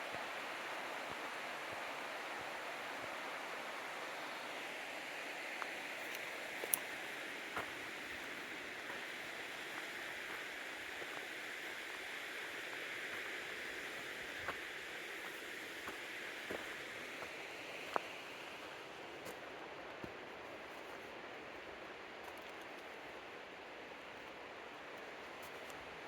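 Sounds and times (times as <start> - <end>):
stream rushing: 0.0 - 19.8.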